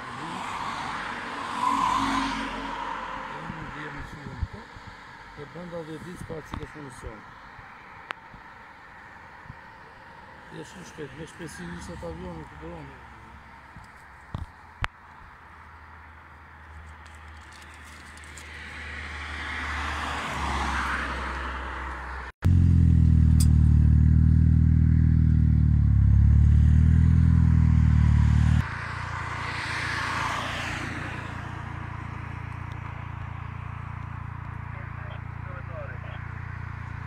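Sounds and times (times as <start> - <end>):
cars passing fast on highway: 0.0 - 22.3, 26.2 - 37.0
low engine hum: 22.4 - 29.4.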